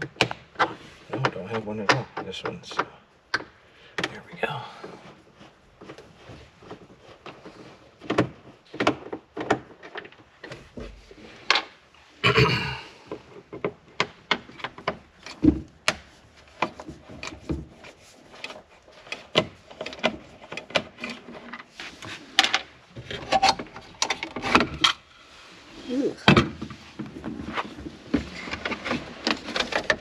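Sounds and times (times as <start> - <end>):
clicks and knocks on plastic: 0.0 - 4.2, 5.8 - 11.7
scraping rustle: 14.6 - 30.0.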